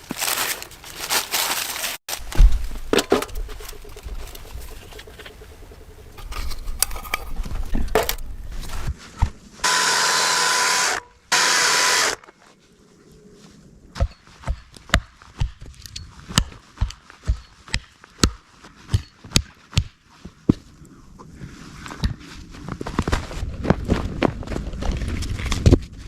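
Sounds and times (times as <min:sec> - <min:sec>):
loud rasping noise: 0:09.6 - 0:12.2.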